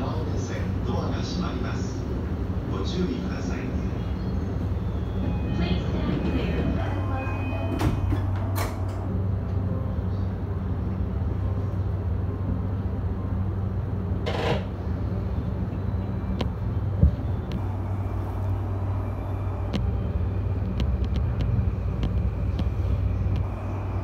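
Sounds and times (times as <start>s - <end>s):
train equipment humming: 0.0s - 24.0s
train clicking: 7.7s - 9.6s, 19.6s - 24.0s.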